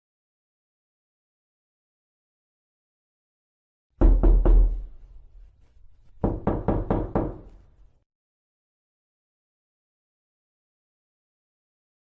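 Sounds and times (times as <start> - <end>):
knocking on a door: 4.0 - 5.0, 6.2 - 7.5.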